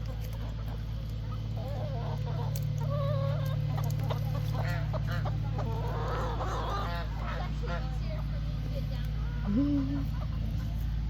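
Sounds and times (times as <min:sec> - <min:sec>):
steady low hum: 0:00.0 - 0:11.0
fowl honking calls: 0:00.4 - 0:08.6.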